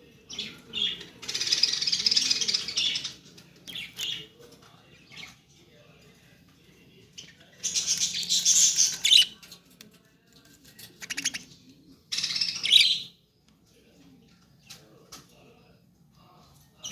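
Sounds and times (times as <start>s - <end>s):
budgerigars chirping and chattering: 0.2s - 5.5s, 7.0s - 9.6s, 10.8s - 13.2s.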